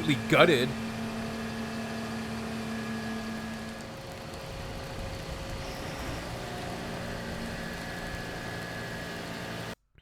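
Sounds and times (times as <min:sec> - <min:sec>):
fire engines idling: 0:00.0 - 0:05.6.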